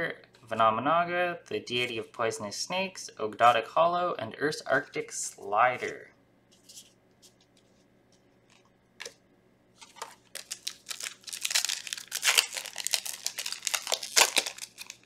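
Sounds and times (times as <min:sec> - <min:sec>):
foil wrapper tearing and crinkling: 0:09.8 - 0:15.0.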